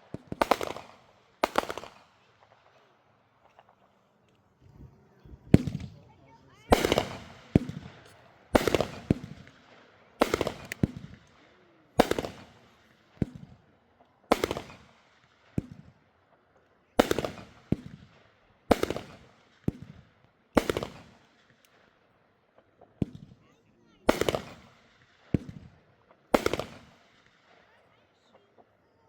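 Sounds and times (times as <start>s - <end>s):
fireworks bangs: 0.0s - 4.0s, 4.6s - 13.6s, 14.3s - 16.0s, 24.0s - 27.6s
fireworks pops: 3.4s - 9.6s.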